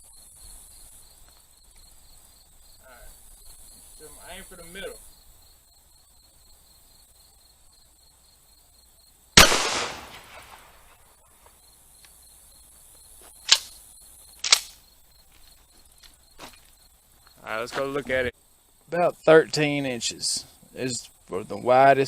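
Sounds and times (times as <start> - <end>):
crickets chirring: 0.0 - 22.0
shotgun shot: 9.4 - 10.9.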